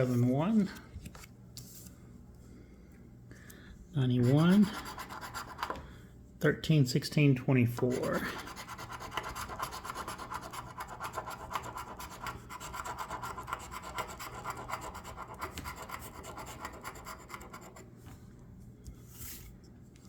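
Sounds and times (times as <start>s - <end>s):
scratching lottery ticket: 4.0s - 5.7s, 7.8s - 17.9s.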